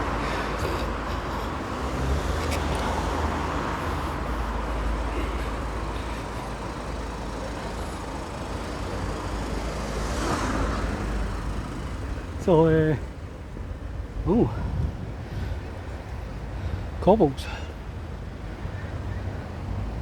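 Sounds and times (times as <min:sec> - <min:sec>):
vehicle passing by: 0:00.0 - 0:12.4
road traffic hum: 0:00.0 - 0:20.0.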